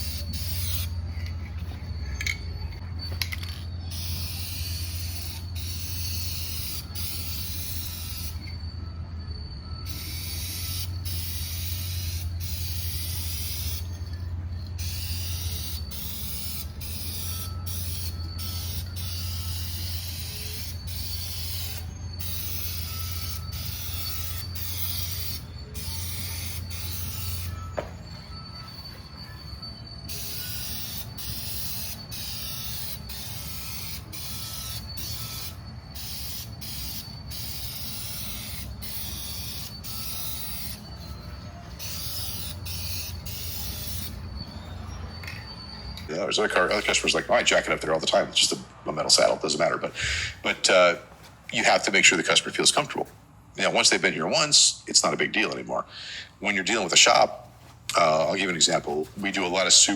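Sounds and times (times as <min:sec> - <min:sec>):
spray paint can hissing: 0:00.0 - 0:01.0, 0:03.9 - 0:08.4, 0:09.8 - 0:14.0, 0:14.8 - 0:27.5, 0:30.1 - 0:41.1, 0:41.7 - 0:44.2
steady low hum: 0:00.0 - 0:59.9.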